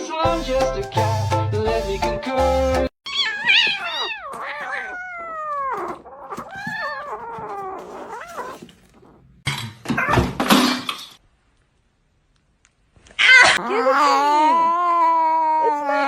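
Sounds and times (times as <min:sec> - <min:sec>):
cat meowing: 0:03.1 - 0:09.4.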